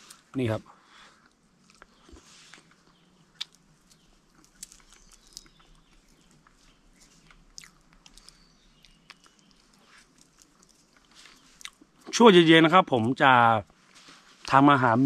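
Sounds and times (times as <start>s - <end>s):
faint chewing: 0.0s - 12.2s
soft tearing: 1.7s - 11.8s.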